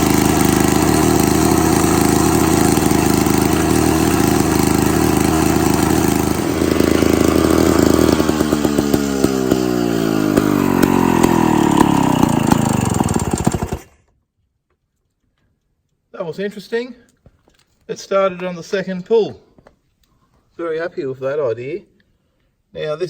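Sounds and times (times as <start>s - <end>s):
lawn mower engine running: 0.0s - 14.0s.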